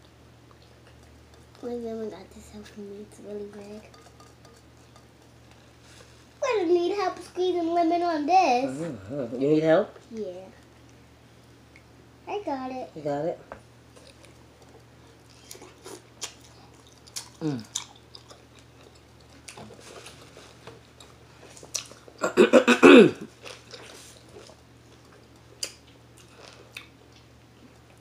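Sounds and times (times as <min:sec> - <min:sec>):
chewing and biting seafood: 0:14.0 - 0:22.2.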